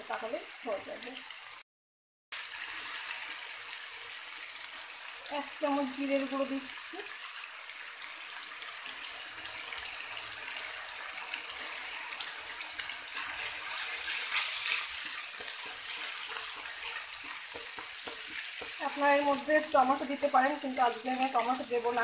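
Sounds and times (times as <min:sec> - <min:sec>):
paste sizzling in hot oil: 0:00.0 - 0:01.6, 0:02.3 - 0:22.0
spatula stirring and scraping: 0:09.7 - 0:22.0.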